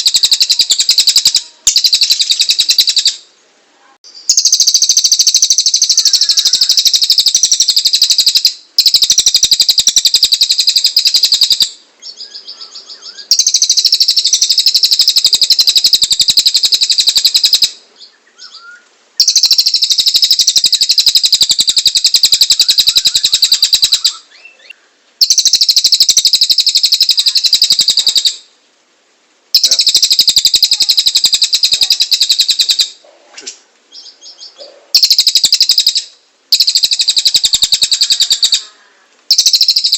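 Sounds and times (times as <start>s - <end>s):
bird fast rattling trill: 0.0s - 3.2s, 4.3s - 11.7s, 13.3s - 17.8s, 19.2s - 24.2s, 25.2s - 28.4s, 29.6s - 32.9s, 35.0s - 38.6s, 39.3s - 39.9s.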